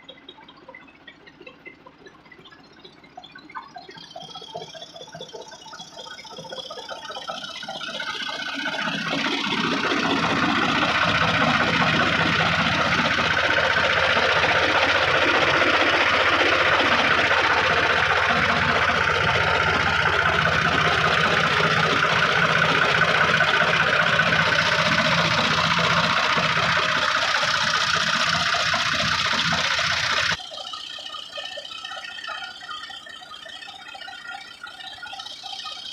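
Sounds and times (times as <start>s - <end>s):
tractor engine running: 3.8s - 30.4s.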